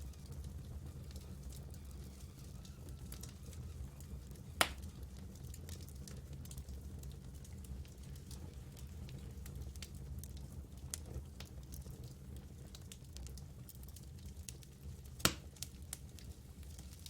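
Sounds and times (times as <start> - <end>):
wood campfire crackling: 0.0 - 17.0
loud pop of fire: 4.5 - 5.0, 15.2 - 15.6.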